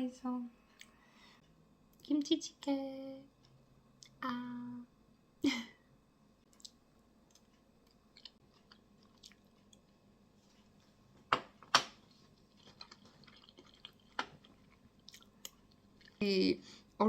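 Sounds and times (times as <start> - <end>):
person chewing food: 6.5 - 10.0, 12.0 - 16.2
wet mouth sounds: 8.1 - 9.8.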